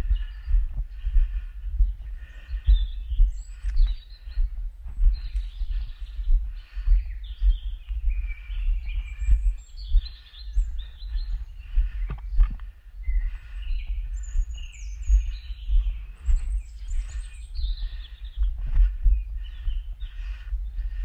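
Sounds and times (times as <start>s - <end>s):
birds singing and chirping: 0.0s - 21.0s
walking footsteps: 0.0s - 21.0s.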